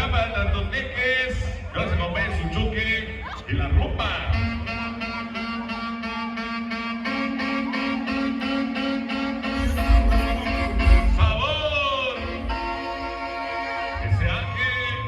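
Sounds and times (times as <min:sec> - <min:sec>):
upbeat dance music: 0:07.1 - 0:14.9
heavy bass hits: 0:09.6 - 0:11.6.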